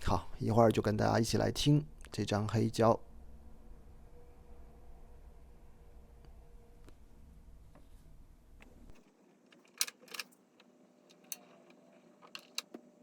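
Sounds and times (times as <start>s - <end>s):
turntable clicks and knocks: 9.6s - 12.9s.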